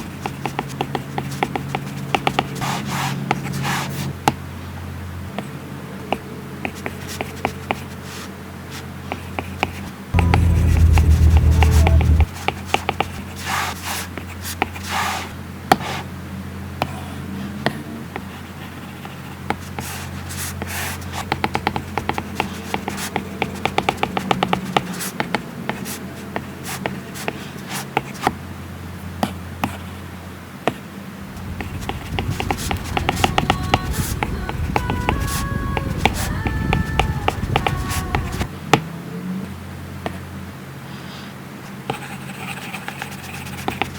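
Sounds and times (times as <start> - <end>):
low steady hum: 10.1 - 12.4.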